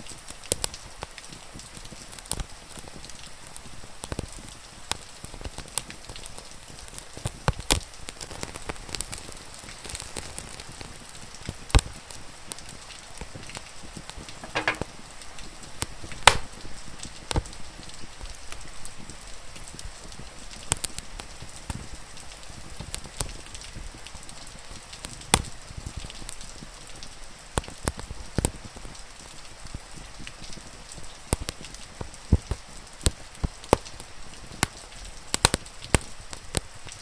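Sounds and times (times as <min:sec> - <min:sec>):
rain hiss: 0:00.0 - 0:37.0
wood fire crackling: 0:00.0 - 0:37.0
fire pops: 0:00.5 - 0:15.1, 0:15.8 - 0:17.6, 0:20.1 - 0:21.9, 0:25.0 - 0:26.4, 0:31.3 - 0:36.7.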